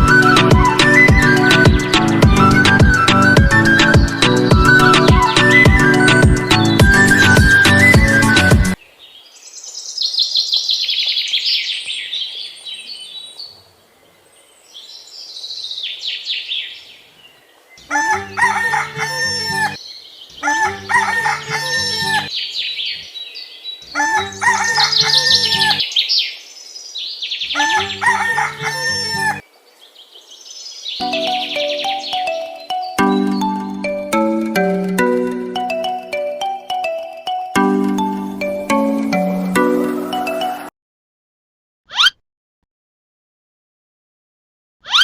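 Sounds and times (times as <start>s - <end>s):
high bird-like calls: 0.0s - 8.8s, 31.0s - 34.4s, 41.9s - 42.2s
short musical phrase: 31.0s - 40.7s.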